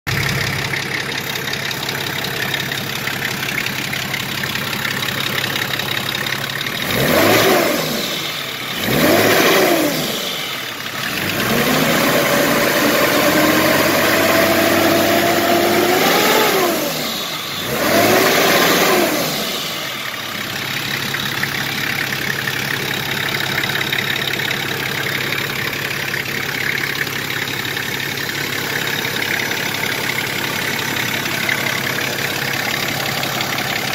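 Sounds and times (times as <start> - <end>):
diesel engine idling and revving: 0.1 - 33.9.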